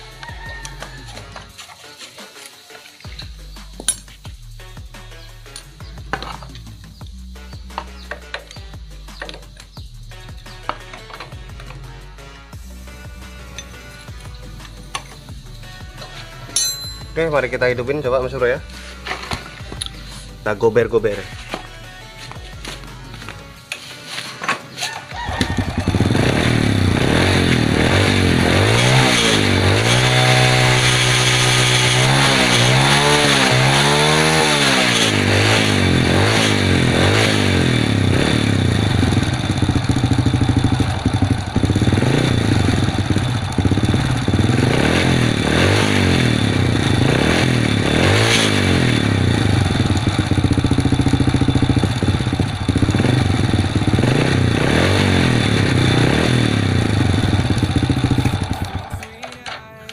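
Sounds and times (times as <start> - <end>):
motorcycle engine revving: 24.8 - 59.2.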